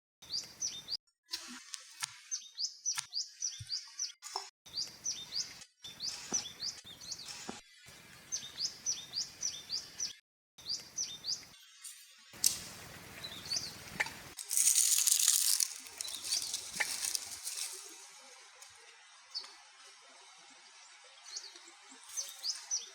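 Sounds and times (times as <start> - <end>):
small bird chirping: 2.2 - 11.5, 12.8 - 17.8.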